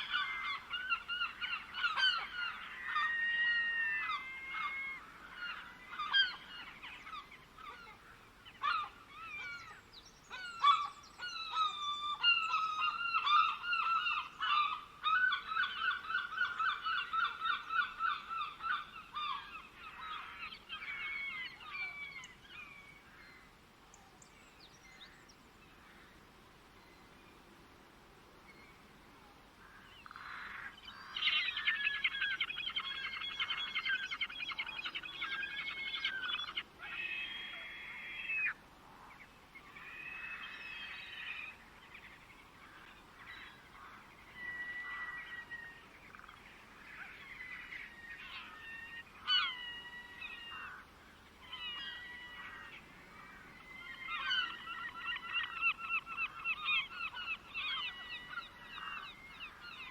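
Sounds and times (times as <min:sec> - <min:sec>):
birds whistling and chirping: 0:30.9 - 0:36.6, 0:53.5 - 0:59.9.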